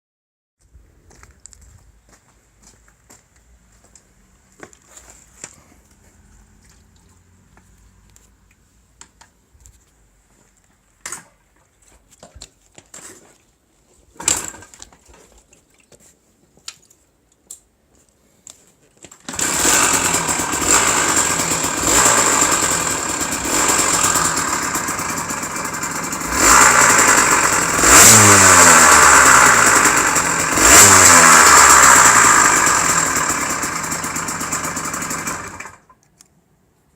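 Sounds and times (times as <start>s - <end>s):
two-stroke engine revving: 19.3s - 35.9s.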